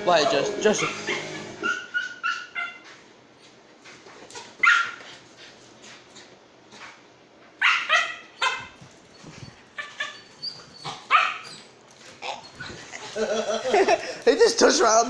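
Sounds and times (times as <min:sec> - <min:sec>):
dog barking and yipping: 0:00.7 - 0:03.0, 0:04.4 - 0:05.0, 0:07.6 - 0:12.8.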